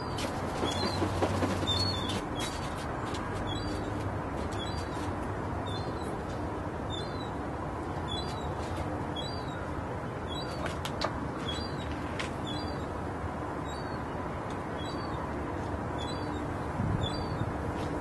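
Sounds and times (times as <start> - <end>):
bird chirping: 3.5 - 3.9, 4.6 - 6.2, 6.9 - 7.4, 8.1 - 8.5, 9.2 - 9.6, 11.4 - 12.9, 13.6 - 14.1, 14.8 - 15.2, 16.0 - 17.5.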